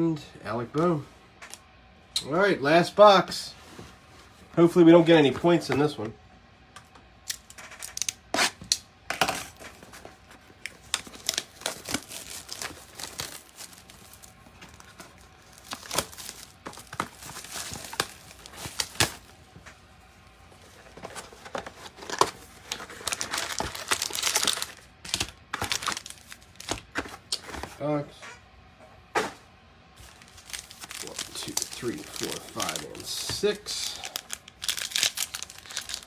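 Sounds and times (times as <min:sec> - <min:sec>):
plastic shrink wrap crinkling: 0:09.5 - 0:19.5, 0:20.5 - 0:27.8, 0:30.0 - 0:36.0.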